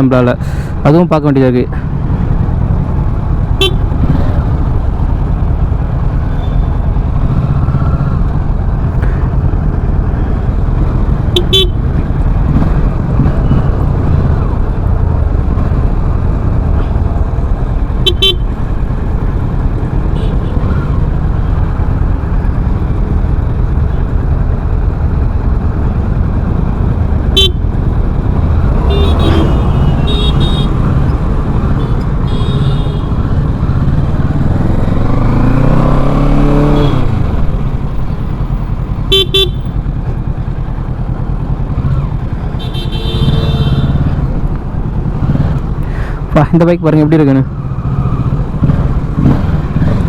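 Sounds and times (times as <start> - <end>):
motorcycle engine running: 1.7 - 50.0
horn toots: 3.6 - 4.0, 11.3 - 11.9, 18.0 - 18.6, 20.1 - 20.8, 27.3 - 27.7, 28.6 - 33.4, 35.5 - 37.2, 39.0 - 39.8, 41.9 - 44.2.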